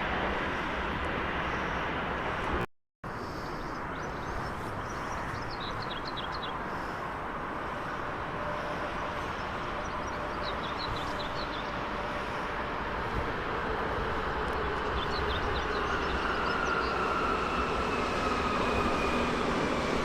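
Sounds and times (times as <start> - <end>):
train rushing along track: 0.0 - 20.0
small birds chirping: 3.2 - 6.9, 9.2 - 11.8.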